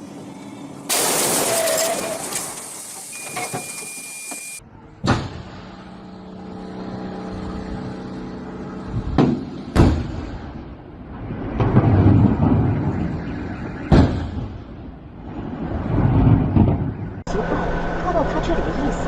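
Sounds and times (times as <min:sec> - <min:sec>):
vehicle engine running: 0:05.4 - 0:10.9.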